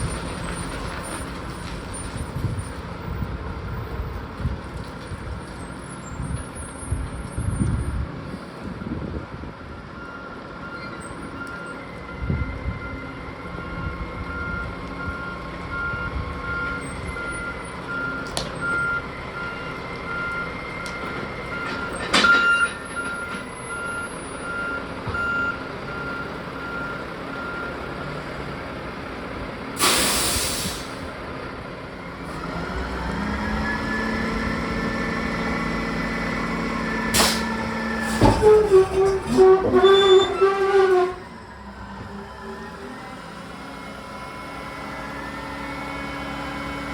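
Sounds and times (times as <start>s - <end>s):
truck engine drone: 0.0s - 46.9s
air brake hiss: 29.8s - 31.1s, 37.1s - 38.2s.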